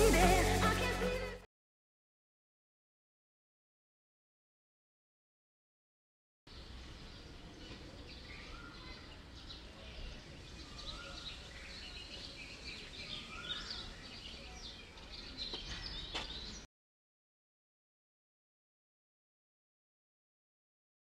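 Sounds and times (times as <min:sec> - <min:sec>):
birds chirping: 0:06.5 - 0:16.7.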